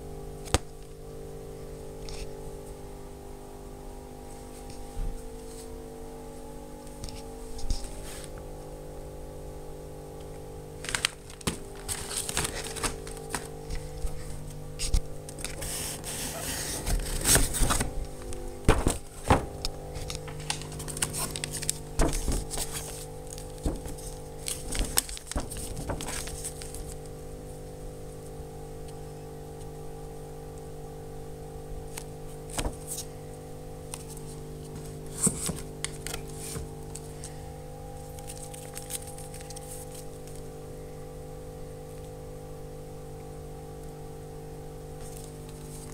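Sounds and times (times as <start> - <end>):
steady droning tone: 0.0 - 45.9
handling knocks scrapes and crinkles: 7.0 - 8.5, 10.8 - 27.2, 33.9 - 37.4, 38.0 - 40.4, 45.0 - 45.9.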